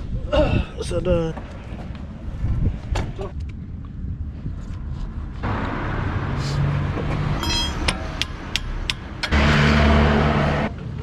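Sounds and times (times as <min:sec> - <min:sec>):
traffic passing: 0:01.4 - 0:11.0
loud vehicle passing close: 0:05.4 - 0:10.8.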